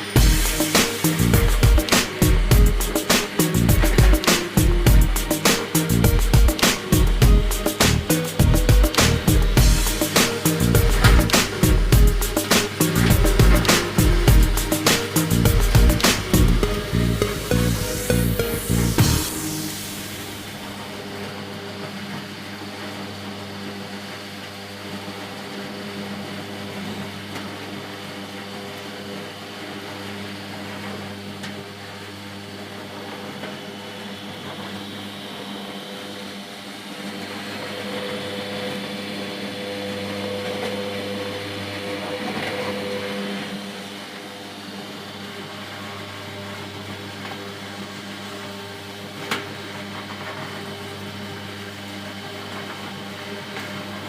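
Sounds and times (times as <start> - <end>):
electric motor humming: 0.0 - 21.2, 34.9 - 47.0.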